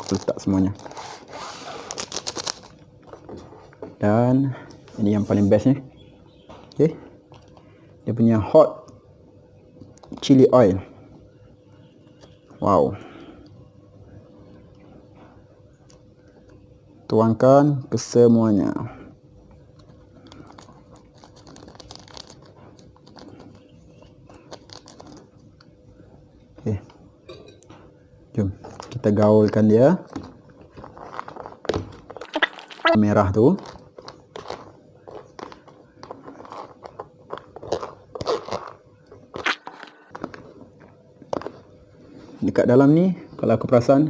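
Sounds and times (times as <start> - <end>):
plastic sachet crinkling: 0.0 - 1.0, 1.8 - 2.8, 19.8 - 25.4, 30.1 - 40.4.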